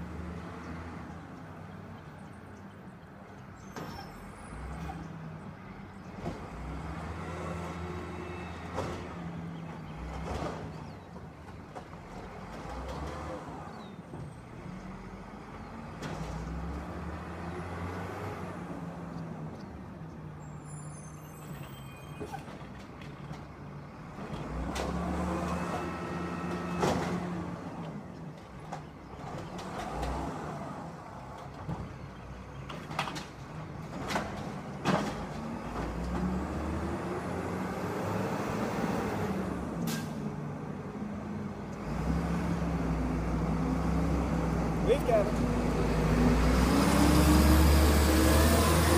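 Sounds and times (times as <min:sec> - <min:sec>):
garbage truck engine revving: 0:24.0 - 0:28.0, 0:32.3 - 0:48.9.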